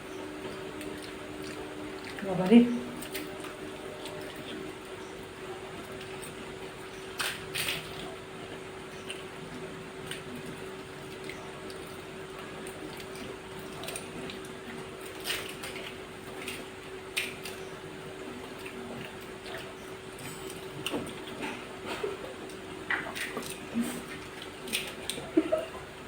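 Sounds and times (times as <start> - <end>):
steady hum: 0.0 - 11.9.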